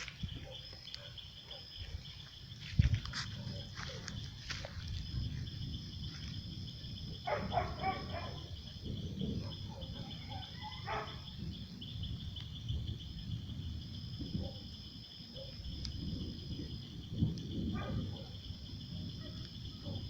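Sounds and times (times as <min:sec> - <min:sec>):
insects trilling: 0:00.0 - 0:20.0
dog barking: 0:00.4 - 0:02.0, 0:03.2 - 0:04.1, 0:07.2 - 0:08.6, 0:09.3 - 0:11.3, 0:14.4 - 0:14.7, 0:15.3 - 0:15.6, 0:17.7 - 0:18.4, 0:19.1 - 0:20.0.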